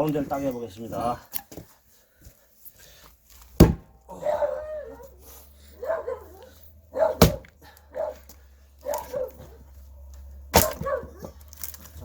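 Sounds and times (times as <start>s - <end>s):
axe chopping log: 3.5s - 3.9s, 7.2s - 7.6s, 10.5s - 11.1s.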